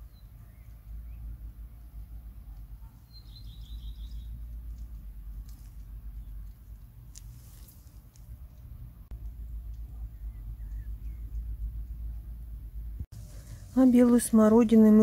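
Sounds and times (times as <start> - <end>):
steady low rumble: 0.0 - 2.9, 3.6 - 15.0
bird trill: 3.0 - 4.4.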